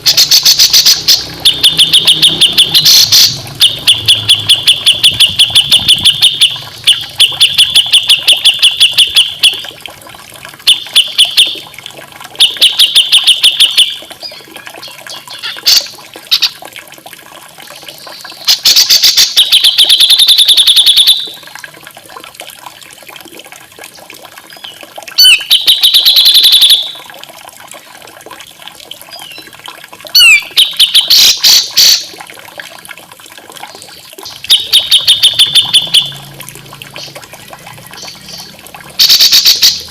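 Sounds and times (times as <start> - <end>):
songbird rapid repeated notes: 0.0 - 9.7, 10.6 - 11.6, 12.4 - 16.6, 18.0 - 21.4, 25.2 - 27.0, 30.2 - 32.1, 34.2 - 36.3, 36.9 - 39.9
faint trickle of running water: 0.0 - 39.9.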